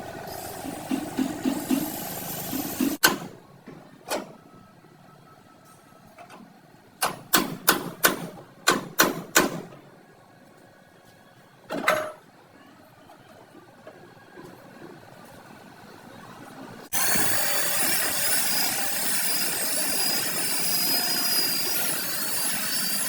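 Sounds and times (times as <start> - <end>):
hammer striking sheet metal: 0.8 - 3.4, 7.0 - 9.7.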